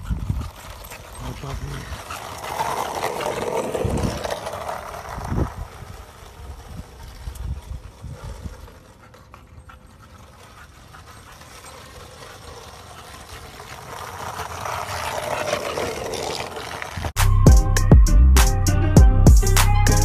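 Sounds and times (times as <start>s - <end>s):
skateboard wheels rolling on asphalt: 0.0s - 17.4s
loud music with drum beat: 17.2s - 20.0s.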